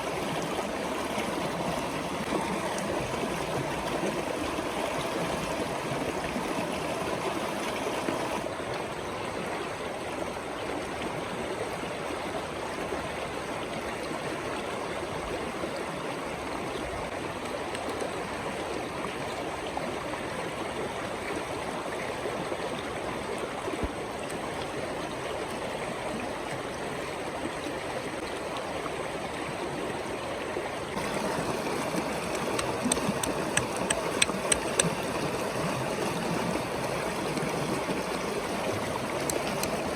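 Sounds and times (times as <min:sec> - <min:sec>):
stream rushing and gurgling: 0:00.0 - 0:39.9
light clicks: 0:32.3 - 0:35.0.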